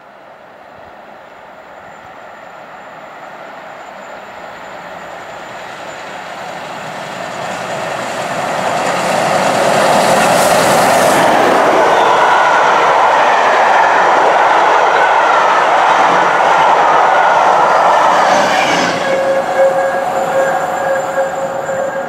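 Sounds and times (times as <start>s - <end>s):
train wheels on rails: 0.1s - 22.0s
steady whine: 10.2s - 22.0s.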